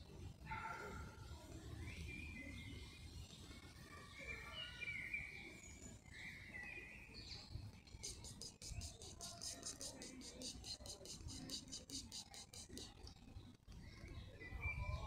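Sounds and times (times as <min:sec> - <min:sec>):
songbirds chirping: 0:00.0 - 0:15.0
soft rasps: 0:07.9 - 0:13.1.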